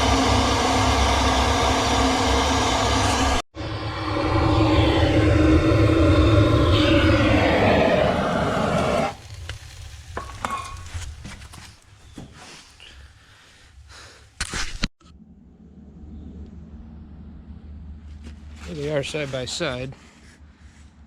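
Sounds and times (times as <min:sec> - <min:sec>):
engine running: 0:00.0 - 0:09.2, 0:15.0 - 0:19.2.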